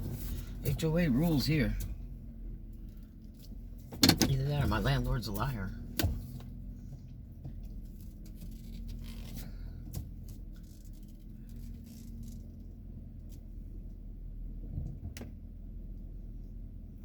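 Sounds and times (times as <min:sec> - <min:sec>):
steady low hum: 0:00.0 - 0:17.0
faint clicks and rustles: 0:06.3 - 0:14.0.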